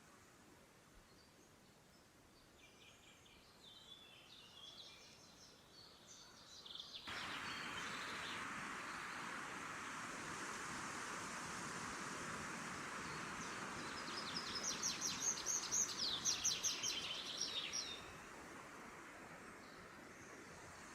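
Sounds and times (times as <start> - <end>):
songbirds chirping and trilling: 1.2 - 9.4, 12.9 - 18.4
loud steady hiss: 6.7 - 20.9.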